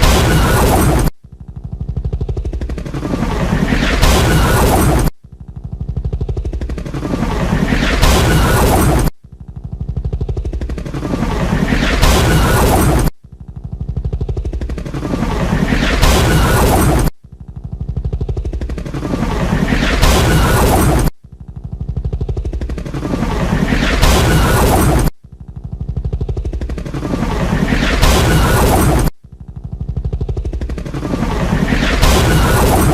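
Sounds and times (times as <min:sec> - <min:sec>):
helicopter rotor chop: 0:00.0 - 0:32.9
loud crash: 0:31.3 - 0:32.9.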